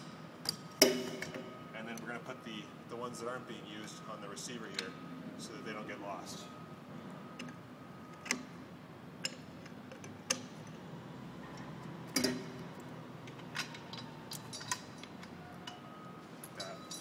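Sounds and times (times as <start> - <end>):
pin caps clicking: 11.5 - 17.0.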